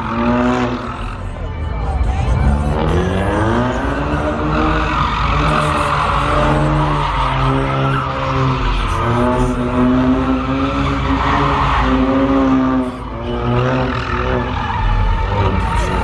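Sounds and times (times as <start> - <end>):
car engine revving hard: 0.0 - 1.2, 2.4 - 16.0.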